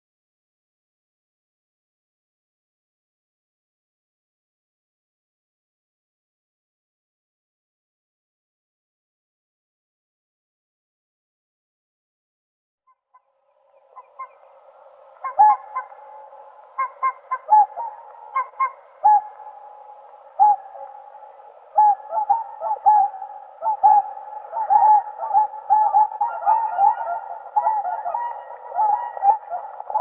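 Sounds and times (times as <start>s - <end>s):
swans honking: 13.9s - 30.0s.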